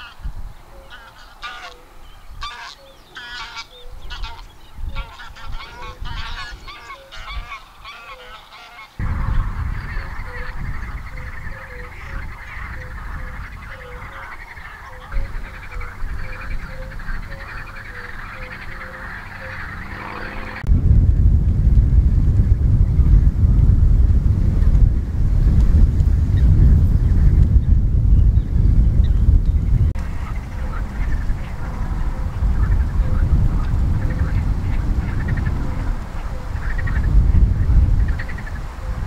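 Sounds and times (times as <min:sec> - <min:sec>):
geese honking: 0:00.0 - 0:20.7, 0:30.0 - 0:39.0
low rumble: 0:09.0 - 0:14.2, 0:15.2 - 0:39.0.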